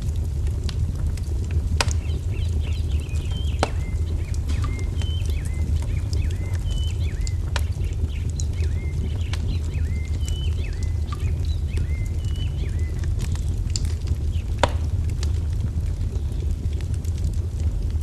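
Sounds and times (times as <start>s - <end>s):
wood fire crackling and popping: 0.0s - 18.0s
songbird chirping: 1.8s - 14.5s.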